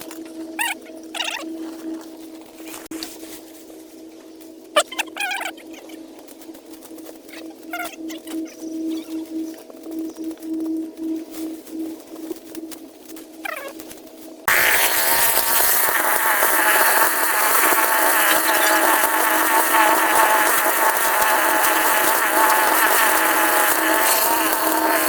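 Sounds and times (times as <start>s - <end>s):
small motor buzzing: 14.5s - 25.0s.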